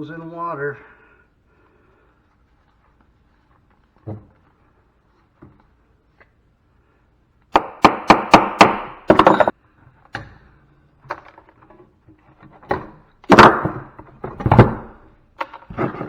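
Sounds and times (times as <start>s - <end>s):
metal knocks and clanks: 9.1s - 10.3s.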